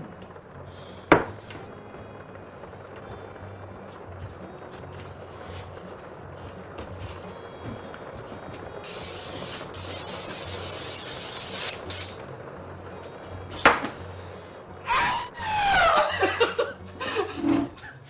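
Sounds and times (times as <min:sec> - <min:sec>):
loud spraying hiss: 0:08.8 - 0:12.2
short sound sliding down in pitch: 0:14.8 - 0:16.2.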